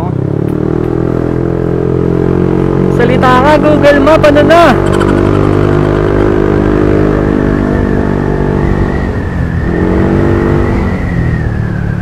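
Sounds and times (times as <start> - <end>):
scooter engine running: 2.2 - 7.1.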